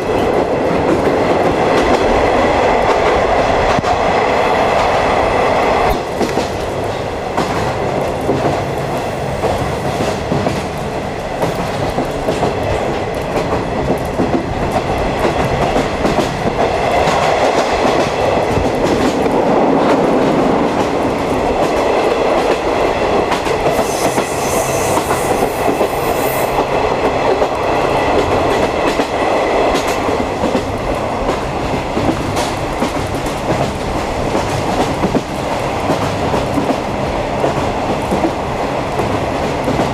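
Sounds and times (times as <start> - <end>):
clickety-clack over rail joints: 0.0 - 39.9
train wheels rumbling on rails: 0.0 - 39.9
high-pitched hiss: 23.8 - 26.6.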